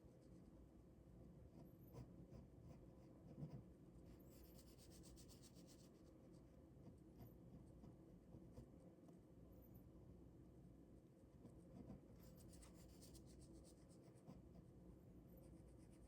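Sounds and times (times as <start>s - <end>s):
pen scratching on paper: 1.5s - 6.0s, 11.4s - 14.6s.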